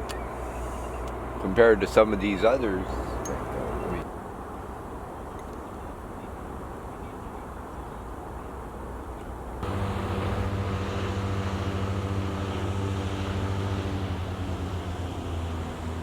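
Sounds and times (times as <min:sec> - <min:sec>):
engine droning: 0:09.6 - 0:16.0.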